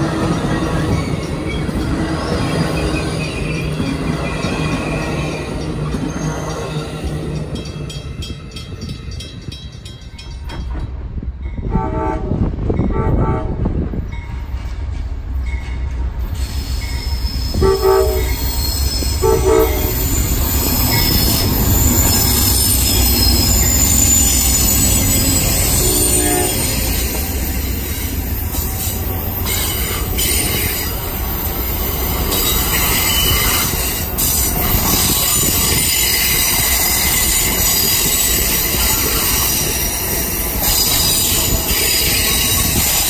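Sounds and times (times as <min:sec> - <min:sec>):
wheels squealing on rails: 0:00.0 - 0:10.8, 0:14.1 - 0:43.0
train rumbling by: 0:00.0 - 0:43.0
train air horn blasts: 0:11.7 - 0:13.7, 0:17.5 - 0:20.2, 0:22.1 - 0:27.2.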